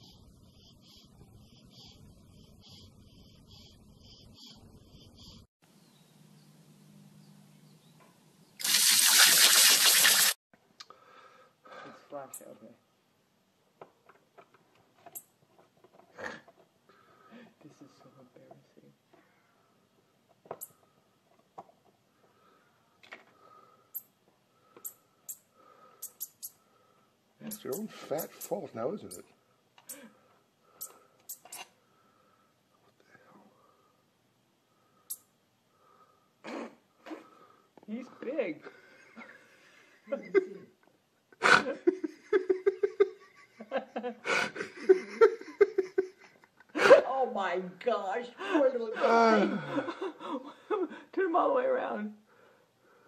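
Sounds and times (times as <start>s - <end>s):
person laughing: 40.1s - 40.7s, 41.4s - 47.1s, 48.9s - 51.0s.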